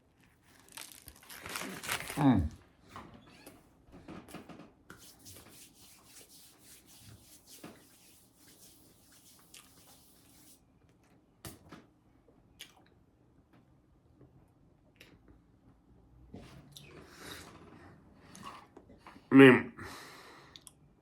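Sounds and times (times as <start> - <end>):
wet chewing and mouth sounds: 12.6 - 13.0.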